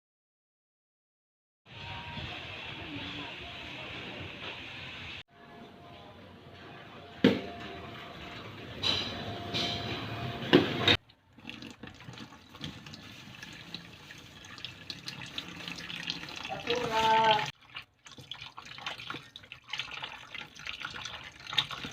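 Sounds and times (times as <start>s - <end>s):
water running: 11.0s - 21.9s.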